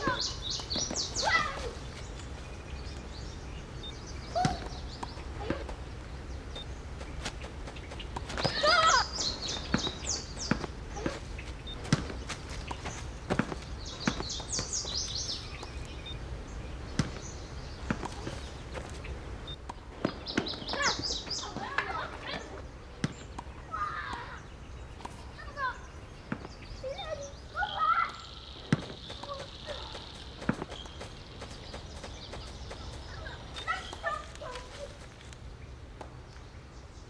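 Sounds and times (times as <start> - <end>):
steady low rumble: 0.0 - 23.7
birds chirping: 0.0 - 37.0.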